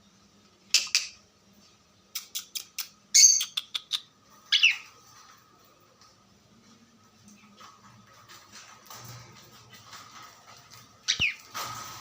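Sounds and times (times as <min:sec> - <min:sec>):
cockatiel squawking and chirping: 0:04.5 - 0:04.9, 0:11.1 - 0:11.4.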